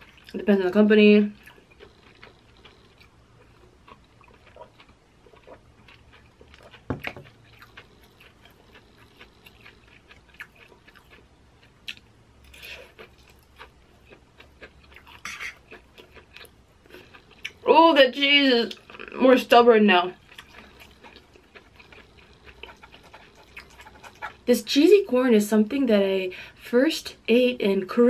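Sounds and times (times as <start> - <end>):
person chewing: 1.3 - 17.7, 20.2 - 24.5.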